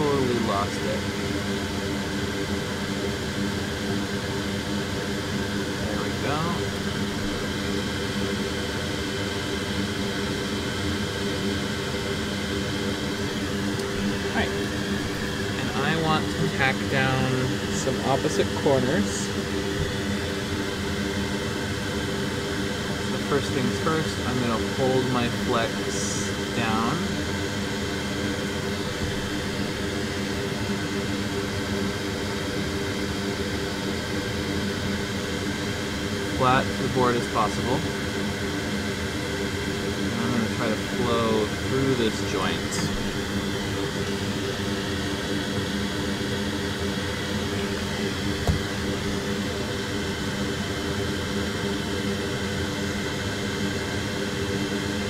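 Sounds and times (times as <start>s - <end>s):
fan whirring: 11.9s - 55.0s.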